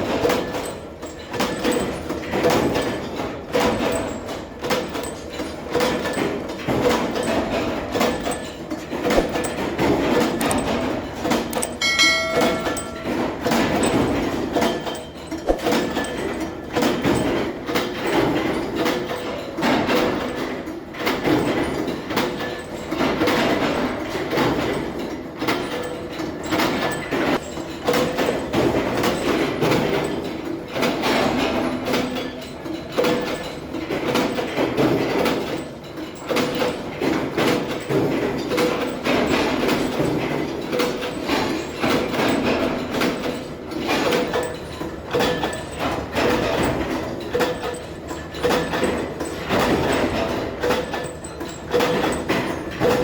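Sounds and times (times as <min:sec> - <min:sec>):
metal machinery clattering: 0:00.0 - 0:53.0
metallic ring: 0:00.3 - 0:20.6, 0:37.8 - 0:53.0.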